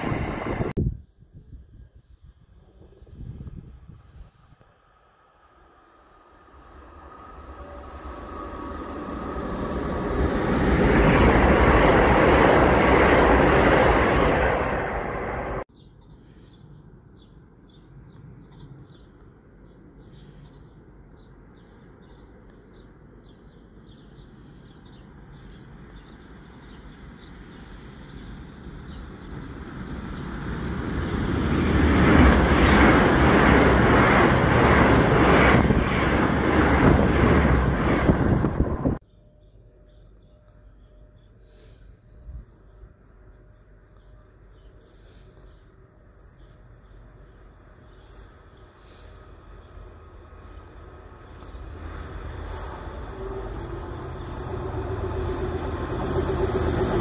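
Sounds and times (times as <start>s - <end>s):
passenger train running past: 0.0s - 0.8s, 2.6s - 15.7s, 25.0s - 39.0s, 42.3s - 57.0s.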